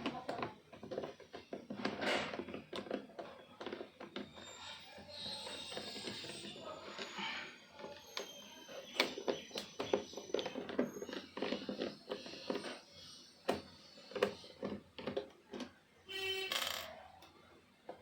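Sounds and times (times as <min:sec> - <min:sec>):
pitched squeak: 0:03.7 - 0:14.6.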